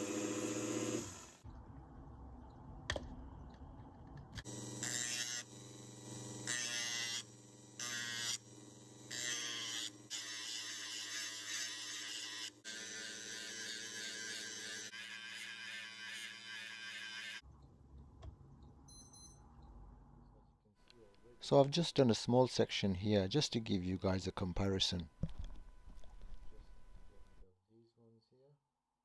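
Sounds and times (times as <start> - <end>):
rotary tool motor hum: 0.0 - 1.4, 4.4 - 17.4.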